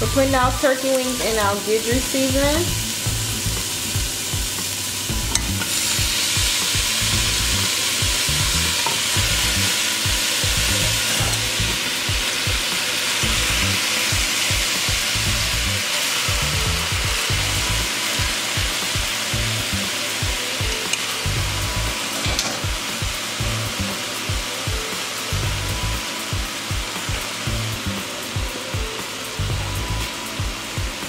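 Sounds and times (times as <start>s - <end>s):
vegetables sizzling in a pot: 0.0s - 31.0s.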